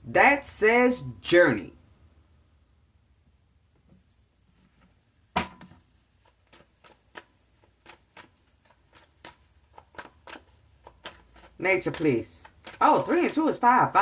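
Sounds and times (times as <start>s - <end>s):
cards being shuffled: 5.8s - 14.0s.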